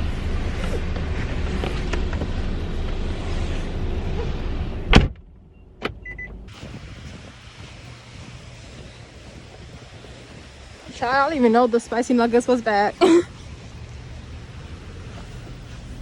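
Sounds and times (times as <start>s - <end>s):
car cabin rumble: 0.0s - 16.0s
car door slamming: 4.8s - 6.3s
short beep: 5.5s - 6.4s
faint wind hiss: 6.4s - 16.0s.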